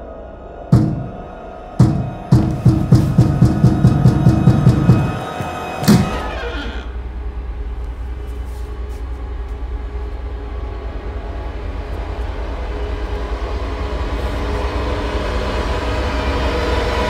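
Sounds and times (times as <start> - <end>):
dark ambient drone: 0.0 - 17.0.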